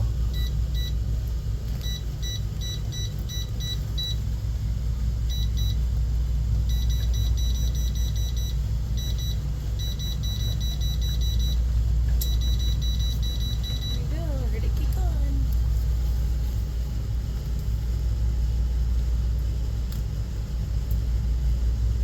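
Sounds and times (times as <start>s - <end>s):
control panel short beeps: 1.8s - 4.2s, 6.7s - 11.6s, 12.2s - 14.1s.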